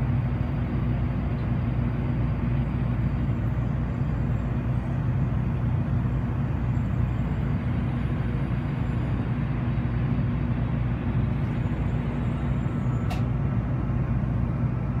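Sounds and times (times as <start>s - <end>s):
train rumble inside cabin: 0.0s - 15.0s
short sharp click: 13.1s - 13.3s.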